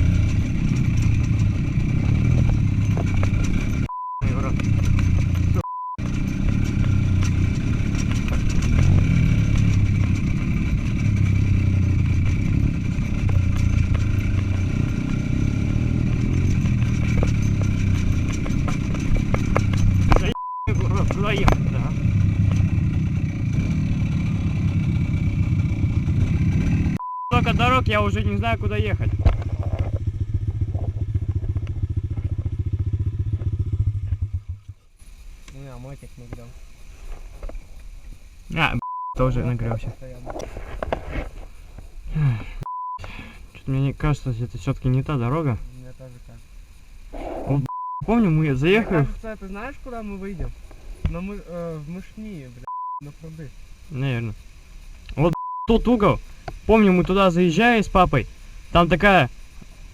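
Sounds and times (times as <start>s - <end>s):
small motorcycle engine droning: 0.0s - 44.0s.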